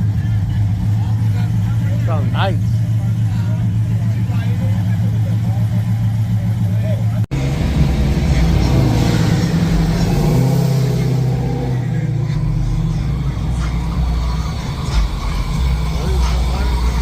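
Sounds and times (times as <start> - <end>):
car engine exhaust rumble: 0.0 - 17.0.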